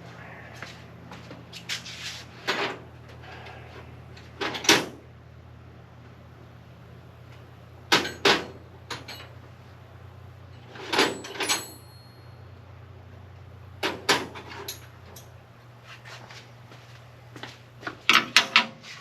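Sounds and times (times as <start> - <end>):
hand tools clanking against metal: 13.9 - 15.3.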